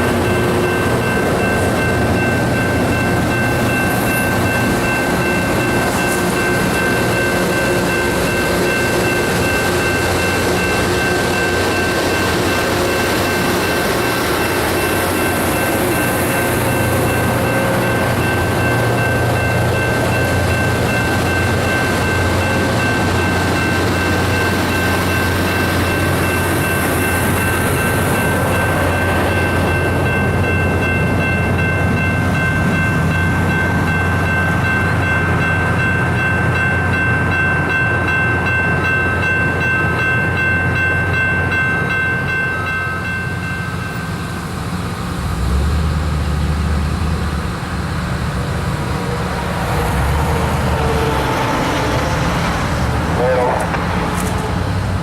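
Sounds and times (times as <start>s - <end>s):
low diesel drone: 42.3s - 55.0s.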